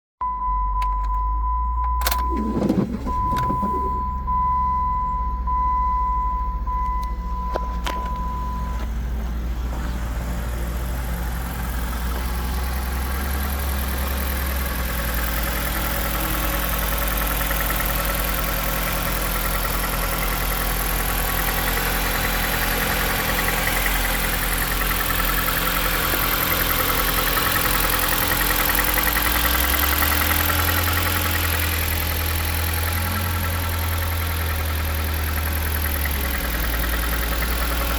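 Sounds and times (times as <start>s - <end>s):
high warning chime beeping: 0.3s - 8.9s
car engine idling: 0.7s - 37.9s.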